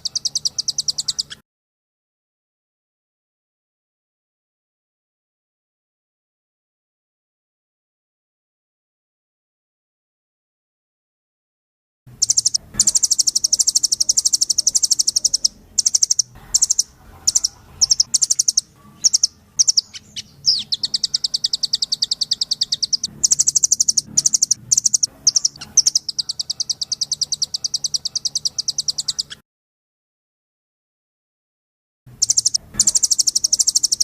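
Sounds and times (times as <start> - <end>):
bird singing rapid trills: 0.0 - 1.4, 12.2 - 29.4, 32.2 - 34.0.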